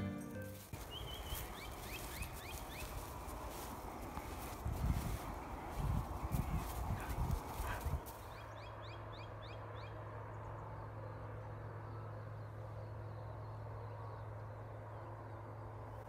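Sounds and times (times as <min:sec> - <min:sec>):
bird calling rising notes: 0:00.0 - 0:03.3.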